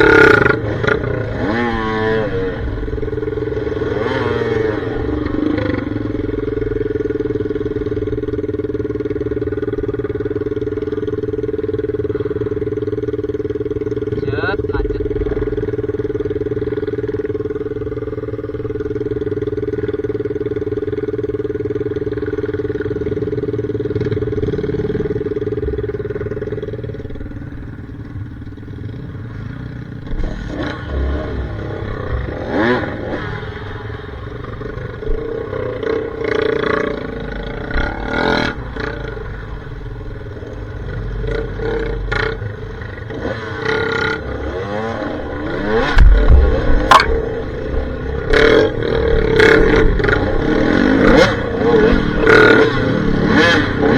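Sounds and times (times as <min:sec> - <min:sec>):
dirt bike engine revving: 0:00.0 - 0:53.9
knocks and clatter: 0:45.8 - 0:48.5.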